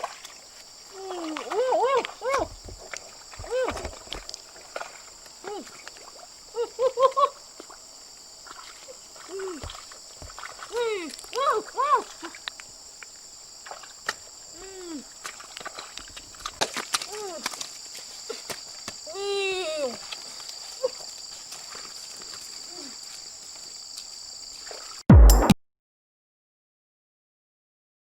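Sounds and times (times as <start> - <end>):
insects droning: 0.0 - 25.0
loud burst: 25.1 - 25.6.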